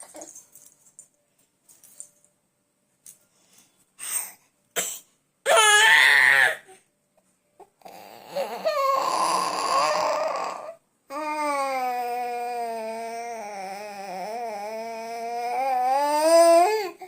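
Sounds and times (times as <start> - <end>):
baby crying: 5.5 - 6.8, 7.8 - 17.0.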